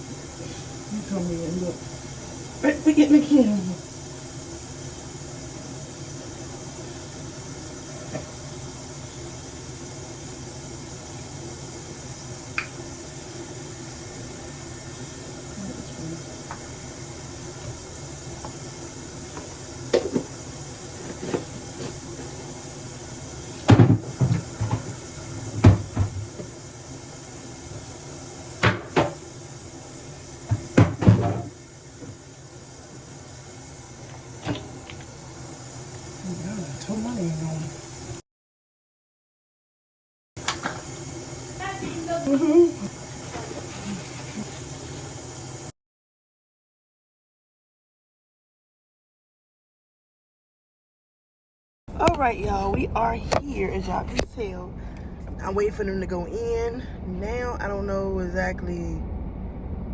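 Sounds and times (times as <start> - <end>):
steady hiss: 0.0 - 38.2, 40.4 - 45.7.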